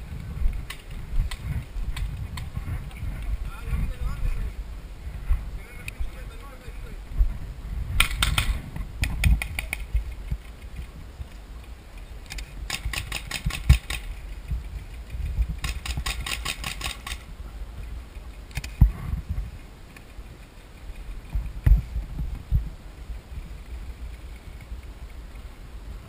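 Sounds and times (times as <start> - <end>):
paintball markers firing: 8.0 - 9.9, 12.3 - 14.2, 15.6 - 17.3.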